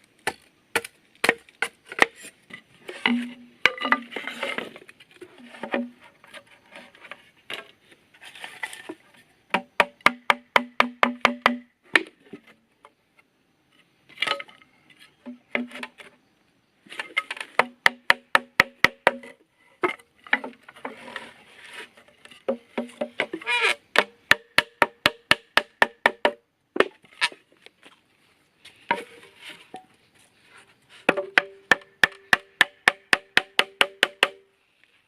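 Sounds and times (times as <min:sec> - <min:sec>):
sharp knocks on wood: 0:09.5 - 0:12.1.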